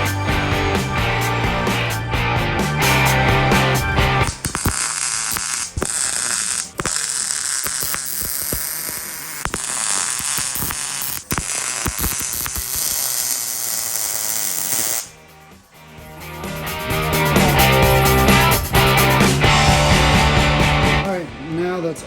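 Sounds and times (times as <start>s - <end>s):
welding arc crackling and sizzling: 0.0s - 2.2s, 2.8s - 15.2s.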